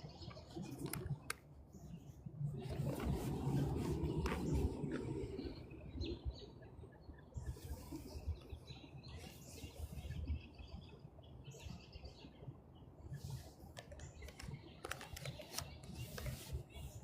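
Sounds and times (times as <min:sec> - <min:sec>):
faint low rumble: 0:00.4 - 0:09.2.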